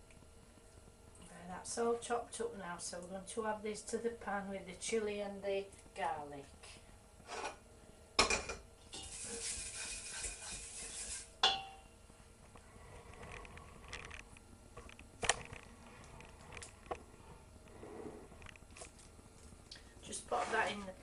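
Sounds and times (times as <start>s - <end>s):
scraping hiss: 8.9s - 11.3s.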